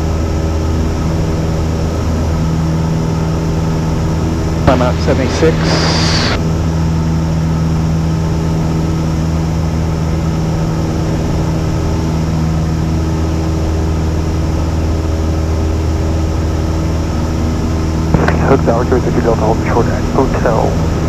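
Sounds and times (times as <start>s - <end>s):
propeller plane engine droning: 0.0s - 21.0s.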